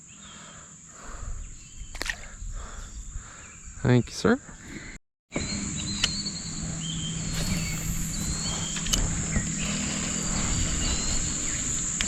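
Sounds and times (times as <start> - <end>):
high-pitched insect buzz: 5.4 - 12.0
short chirps: 7.3 - 8.9.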